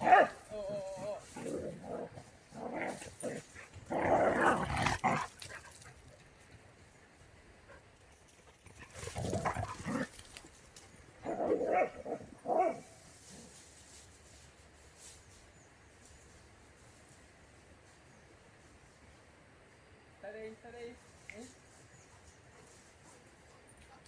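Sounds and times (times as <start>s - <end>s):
dogs growling and barking: 1.2s - 5.6s, 8.7s - 10.4s, 11.2s - 12.9s.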